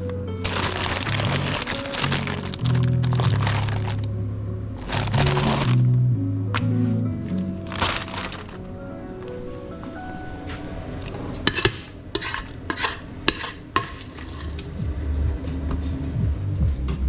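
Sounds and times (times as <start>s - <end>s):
metal clinking against pot: 11.0s - 14.6s
utensil scraping in a pot: 11.1s - 14.7s.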